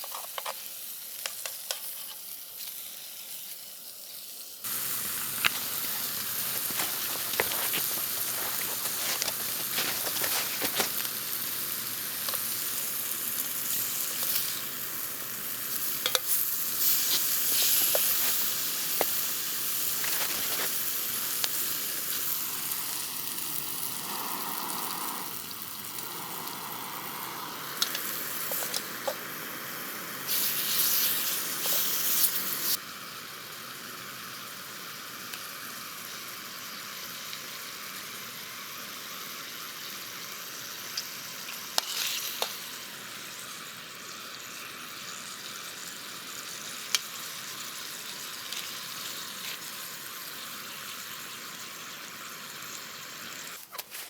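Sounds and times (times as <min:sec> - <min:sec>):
food sizzling in a pan: 0:00.0 - 0:54.0
sharp pops and crackles: 0:04.7 - 0:15.0, 0:15.7 - 0:32.8.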